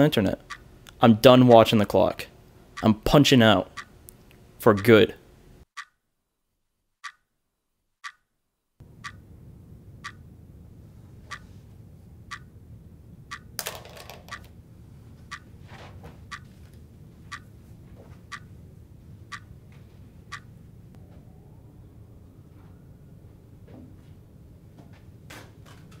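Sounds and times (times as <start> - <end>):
wall clock ticking: 0.0 - 2.1, 2.7 - 4.0, 4.7 - 5.1, 5.7 - 6.0, 7.0 - 7.3, 8.0 - 8.3, 8.9 - 9.3, 10.0 - 10.3, 12.2 - 12.5, 13.3 - 14.5, 15.3 - 15.5, 16.2 - 16.5, 17.3 - 17.5, 18.3 - 18.6, 19.3 - 19.6, 20.2 - 20.6
low room hum: 0.0 - 5.7, 8.8 - 26.0.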